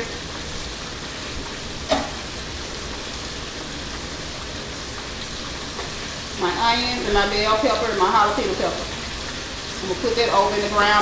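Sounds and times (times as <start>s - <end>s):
meat sizzling in a pan: 0.0s - 11.0s.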